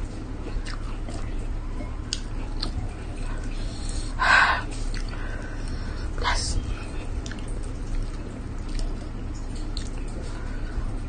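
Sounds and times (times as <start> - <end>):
steady low hum: 0.0 - 11.0
person chewing: 0.4 - 1.3, 2.1 - 5.9, 6.9 - 10.4.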